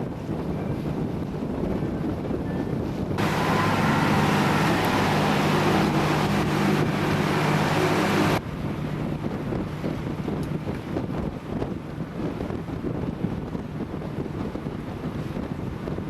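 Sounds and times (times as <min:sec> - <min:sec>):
rush of wind and water: 0:00.0 - 0:16.0
boat motor running: 0:03.2 - 0:10.8.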